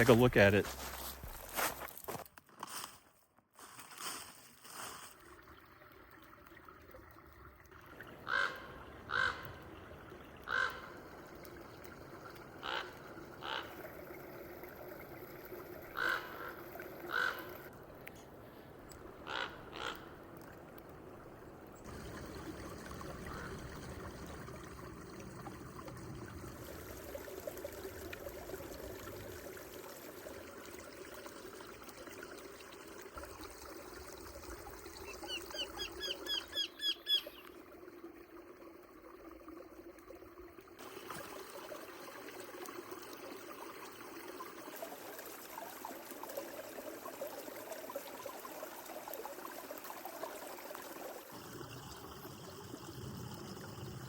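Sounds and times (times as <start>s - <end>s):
creek water trickling: 0.0s - 54.0s
bird calls: 35.1s - 37.5s.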